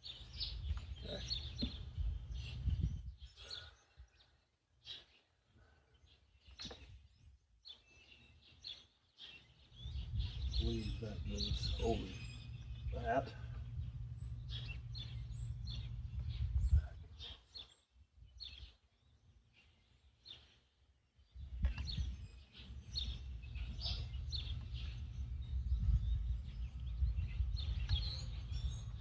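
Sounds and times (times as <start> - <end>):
small birds chirping: 0.0 - 29.0
steady low rumble: 9.8 - 17.2, 22.9 - 29.0.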